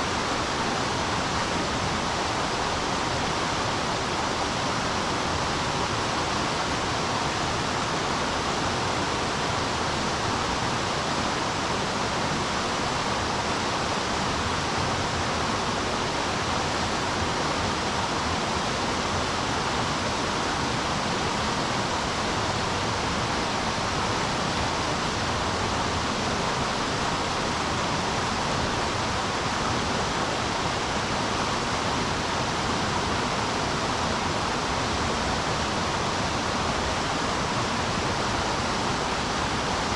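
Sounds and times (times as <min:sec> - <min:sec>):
rushing river water: 0:00.0 - 0:39.9.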